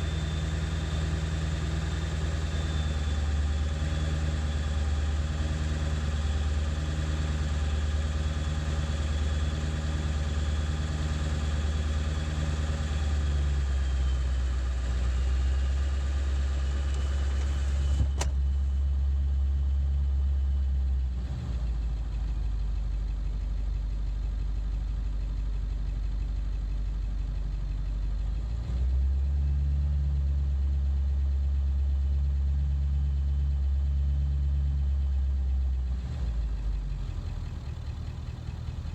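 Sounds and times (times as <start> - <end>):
diesel engine idling roughly: 21.6 - 28.6, 35.7 - 38.9.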